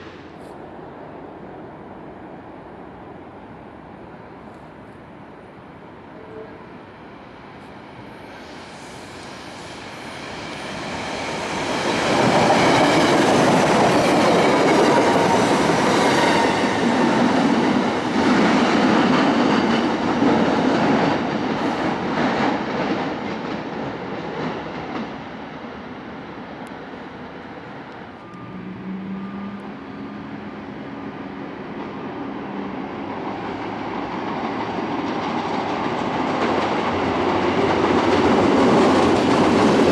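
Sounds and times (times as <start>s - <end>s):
train rumbling past: 0.0s - 39.9s.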